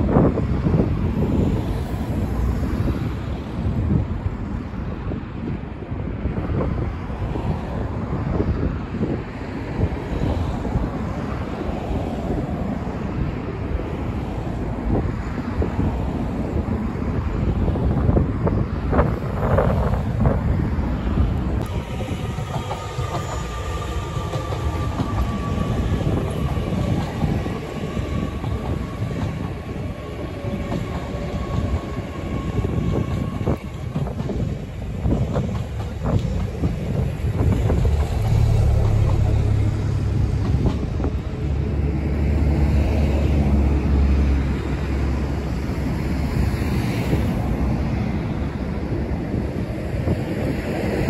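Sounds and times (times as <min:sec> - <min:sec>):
train wheels clacking over rails: 0:21.6 - 0:41.8.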